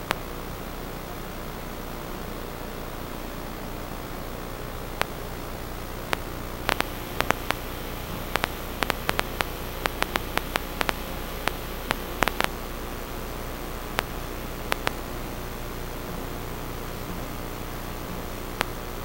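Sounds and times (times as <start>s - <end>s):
static hiss: 0.0s - 19.0s
sharp clicks and crackles: 4.9s - 5.2s, 6.1s - 12.6s, 14.0s - 15.0s, 18.6s - 18.8s.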